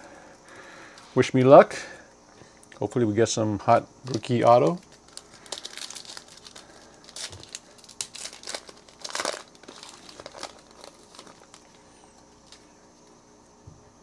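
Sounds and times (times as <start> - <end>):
card pack wrapper tearing and crinkling: 4.0 - 12.6.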